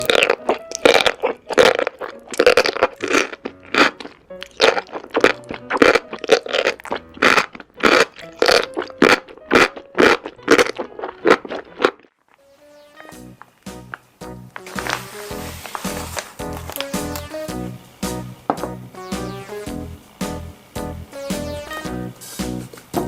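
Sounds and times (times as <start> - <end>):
crunchy chewing of food: 0.0 - 12.4
soft background music: 0.0 - 23.0.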